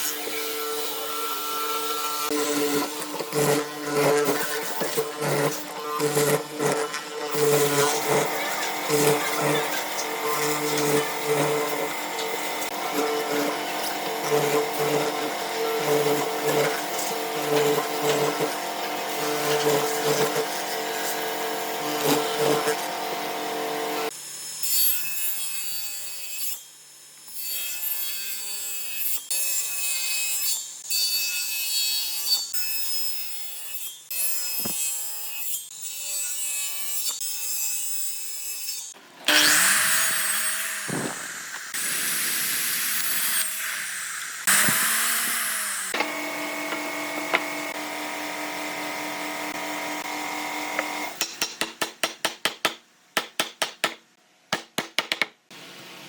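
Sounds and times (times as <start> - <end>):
wood being sawn: 0.0 - 24.1, 39.3 - 51.2.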